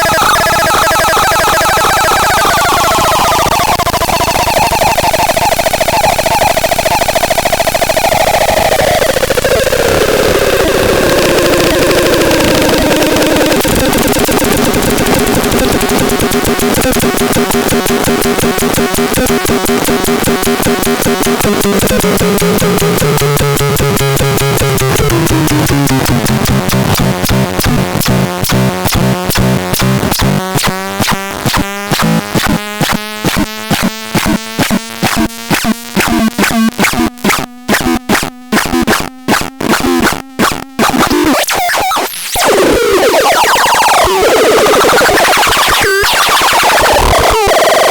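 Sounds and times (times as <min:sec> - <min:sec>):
choppy electronic clicks: 0:00.0 - 0:47.9
harsh electronic buzzing: 0:00.0 - 0:47.9
electronic pulse train: 0:11.0 - 0:41.5.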